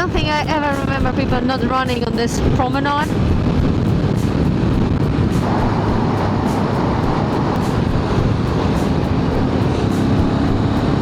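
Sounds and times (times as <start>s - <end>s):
wind over microphone: 0.0s - 11.0s
motorcycle engine: 3.3s - 11.0s.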